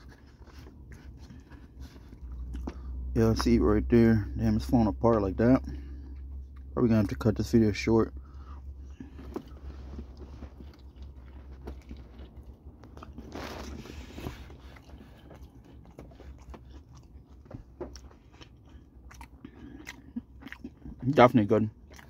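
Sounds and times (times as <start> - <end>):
person chewing and biting food: 0.0 - 3.1, 8.7 - 22.0.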